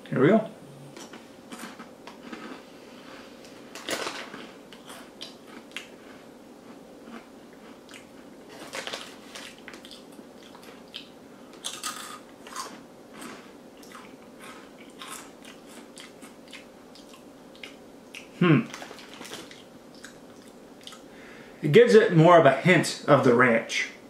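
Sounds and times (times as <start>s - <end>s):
crunchy snack being chewed: 1.0s - 2.7s, 3.7s - 21.0s
plastic snack bag crinkling: 3.7s - 5.6s, 8.5s - 10.8s, 18.7s - 19.6s.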